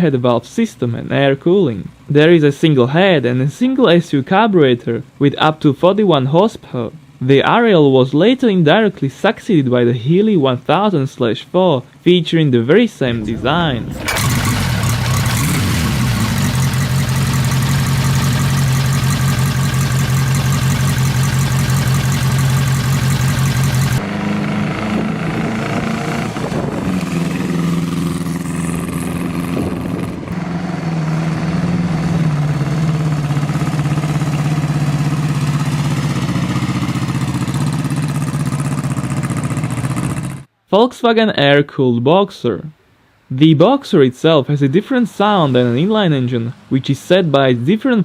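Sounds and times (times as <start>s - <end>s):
motorcycle engine running: 13.2s - 40.5s.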